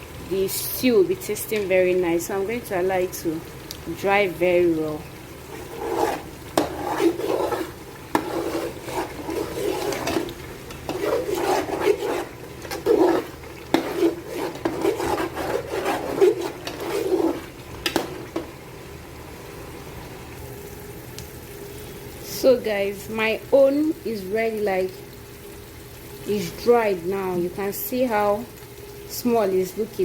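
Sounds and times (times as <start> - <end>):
spoon stirring thick stew in pot: 5.4 - 18.5.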